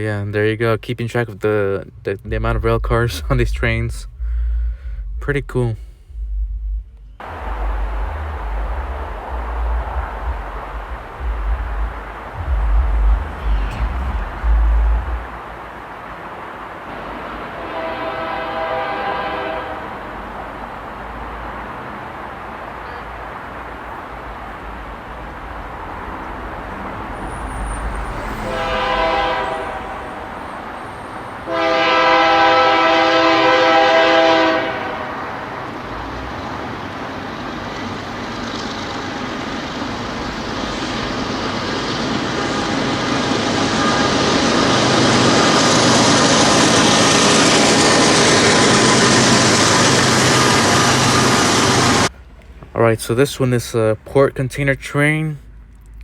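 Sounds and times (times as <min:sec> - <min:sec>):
train rumbling: 0:00.0 - 0:56.0
locomotive air horn blasts: 0:17.2 - 0:20.2, 0:27.1 - 0:36.1, 0:42.3 - 0:45.7.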